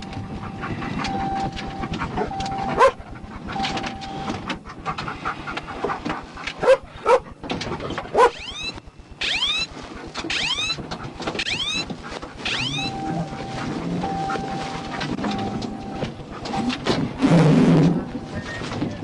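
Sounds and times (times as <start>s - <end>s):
dog whining: 0.0s - 4.4s, 8.1s - 19.0s
dog panting: 0.0s - 8.2s, 10.8s - 17.2s.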